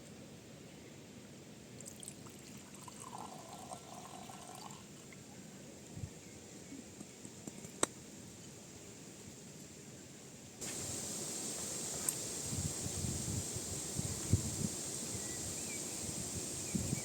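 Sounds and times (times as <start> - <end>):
liquid pouring: 1.9 - 4.8.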